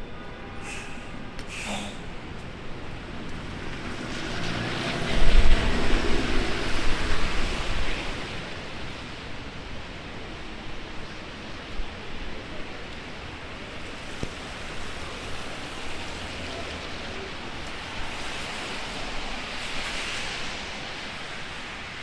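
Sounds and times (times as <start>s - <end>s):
wind rumbling on microphone: 0.6s - 16.4s
heavy rain falling: 0.6s - 22.0s.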